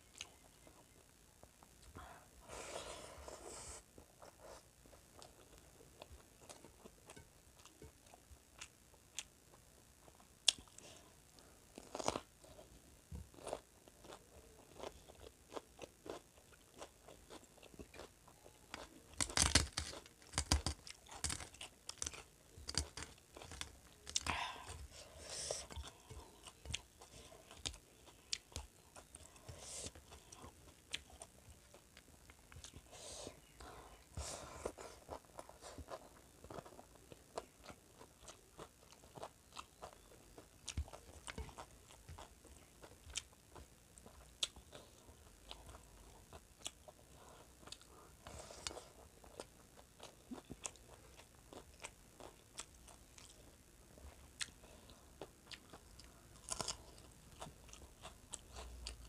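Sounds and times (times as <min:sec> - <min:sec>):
person chewing food: 0:04.0 - 0:59.0
food crunching: 0:11.7 - 0:12.7, 0:13.3 - 0:33.6, 0:34.7 - 0:59.0.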